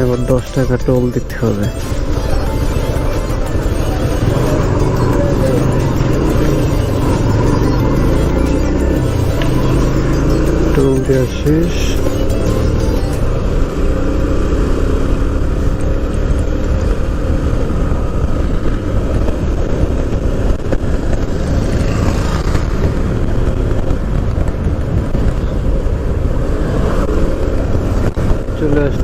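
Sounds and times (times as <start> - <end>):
motorcycle engine running: 0.0 - 29.0
wind rumble on microphone: 13.2 - 29.0.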